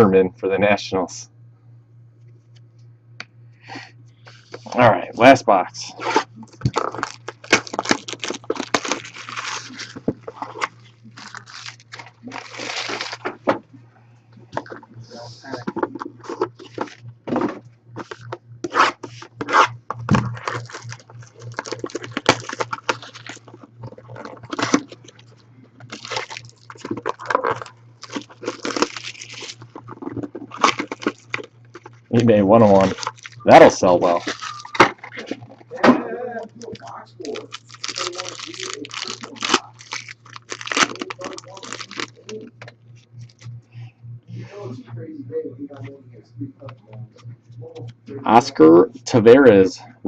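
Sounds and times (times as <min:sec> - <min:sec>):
low electrical hum: 0:00.0 - 0:50.0
cardboard and wrappers crinkling: 0:05.9 - 0:13.5, 0:15.5 - 0:35.7, 0:36.6 - 0:43.5.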